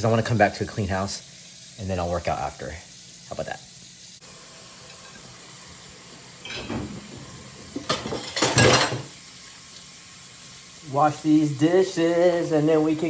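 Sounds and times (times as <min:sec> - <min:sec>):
faint steady hiss: 0:00.0 - 0:13.0
dishes and cutlery clattering: 0:06.4 - 0:09.2.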